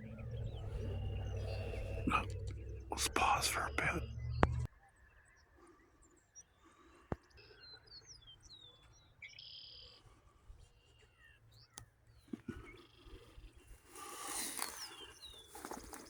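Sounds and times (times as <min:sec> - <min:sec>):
songbirds chirping: 0:00.0 - 0:16.0
sharp clicks: 0:01.4 - 0:04.7.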